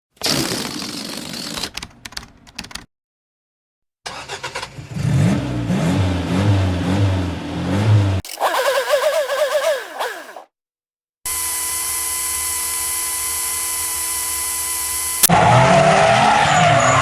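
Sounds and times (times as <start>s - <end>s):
car engine starting and revving: 4.1s - 10.4s
high-pitched revving whine: 7.7s - 10.4s, 11.3s - 17.0s.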